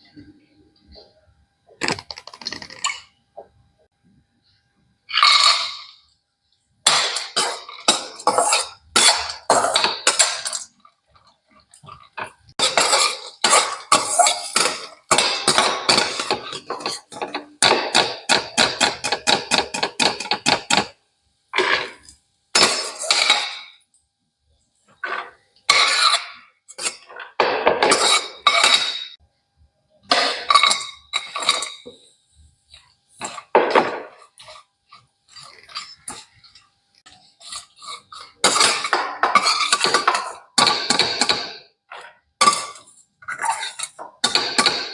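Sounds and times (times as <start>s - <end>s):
metal spoon scraping a metal pan: 6.9s - 10.8s, 11.8s - 20.9s, 21.6s - 23.8s, 25.0s - 29.2s, 30.1s - 32.1s, 33.2s - 44.9s.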